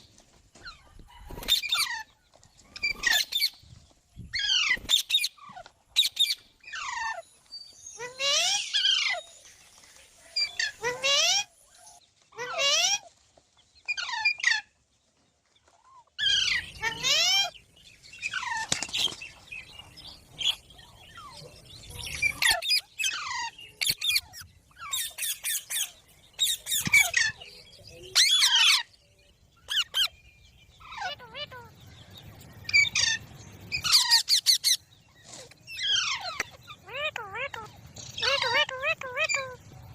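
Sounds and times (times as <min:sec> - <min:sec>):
parrot squawking: 0:35.8 - 0:39.6.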